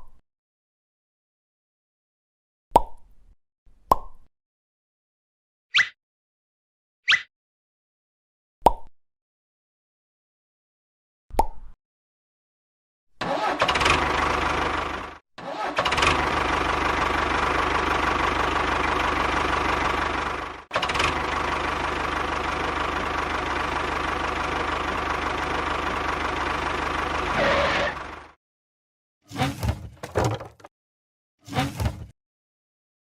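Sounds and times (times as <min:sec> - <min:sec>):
small tractor motor rattling: 0:13.2 - 0:28.3, 0:30.0 - 0:30.7.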